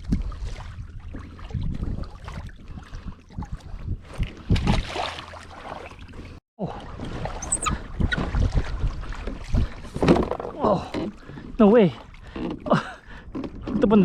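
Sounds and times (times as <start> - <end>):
wind on microphone: 0.0 - 5.0, 6.9 - 10.9
splashes and knocks: 0.0 - 14.0
water slapping against kayak hull: 0.0 - 14.0
brief high squeak: 7.4 - 8.2.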